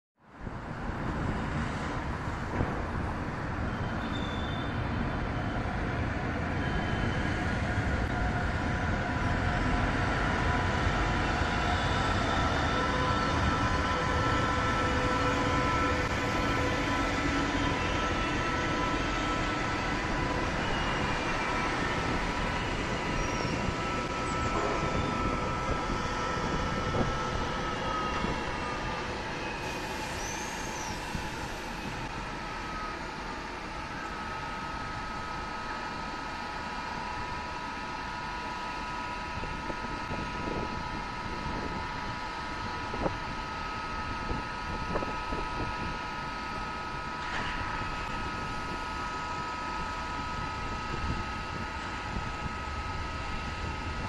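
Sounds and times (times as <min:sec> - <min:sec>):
train rumbling over bridge: 0:00.3 - 0:54.0.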